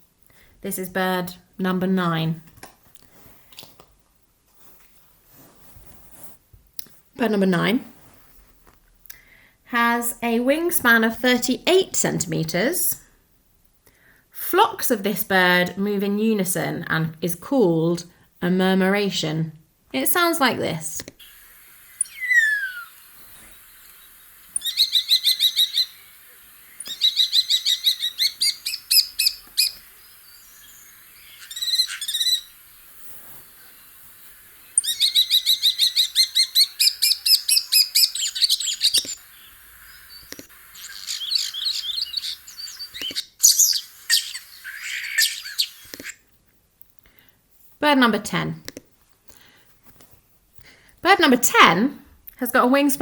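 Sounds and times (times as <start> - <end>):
starling singing: 20.0 - 46.2.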